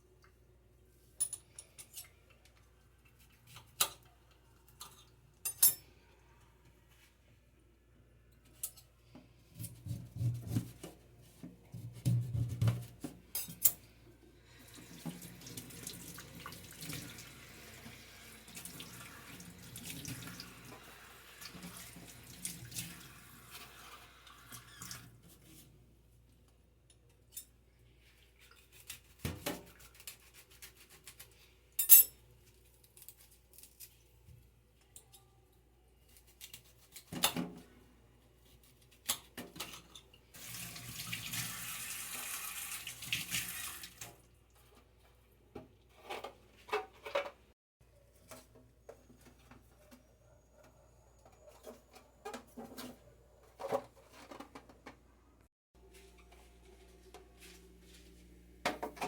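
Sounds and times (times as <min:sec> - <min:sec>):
kitchen tap running: 0:14.6 - 0:25.1, 0:40.4 - 0:44.3.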